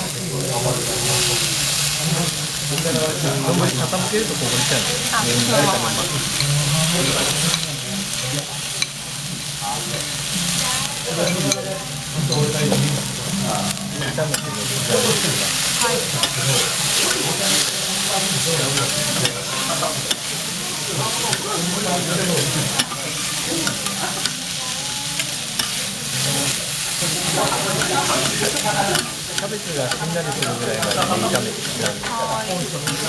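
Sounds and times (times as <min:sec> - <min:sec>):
food sizzling on a griddle: 0:00.0 - 0:33.0
metal spatulas clicking on griddle: 0:23.6 - 0:24.4, 0:27.8 - 0:32.2, 0:32.8 - 0:33.0.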